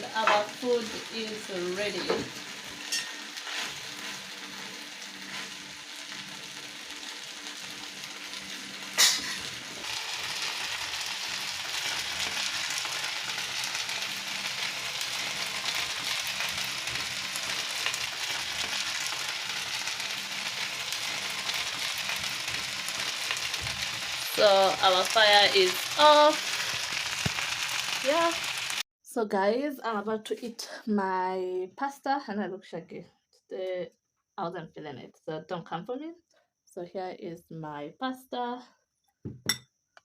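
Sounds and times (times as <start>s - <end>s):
food sizzling in a pan: 0.0s - 28.8s.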